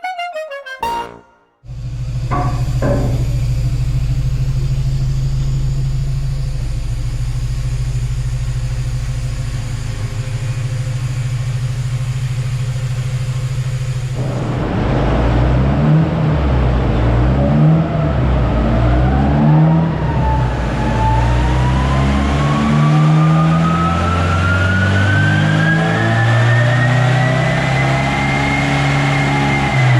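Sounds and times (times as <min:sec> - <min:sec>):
car engine idling: 0:01.7 - 0:17.4
short knocks: 0:02.3 - 0:03.6.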